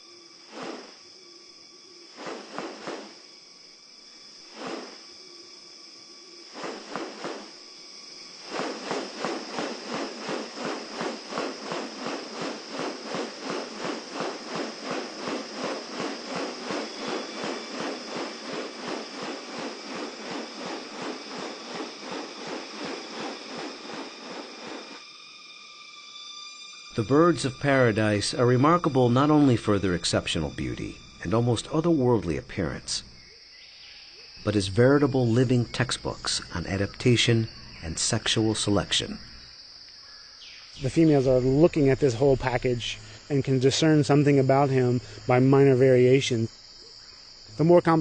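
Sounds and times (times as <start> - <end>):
high insect drone: 0.0 - 48.0
fast rasping pulses: 8.4 - 25.0.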